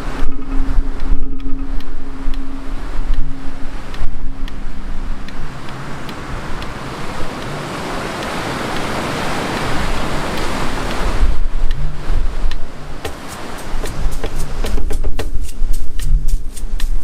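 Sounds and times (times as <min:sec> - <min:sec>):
wind rumbling on microphone: 0:00.0 - 0:17.0
wave breaking on beach: 0:02.4 - 0:15.1.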